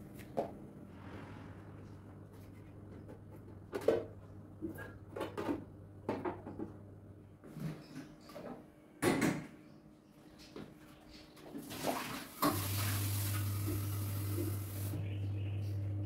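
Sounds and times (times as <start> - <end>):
low steady hum: 12.6 - 16.0.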